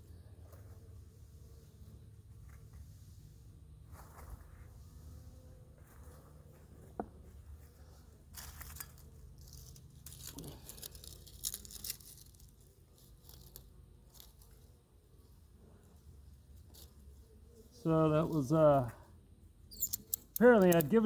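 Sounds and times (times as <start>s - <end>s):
paper crinkling and tearing: 9.4s - 13.6s.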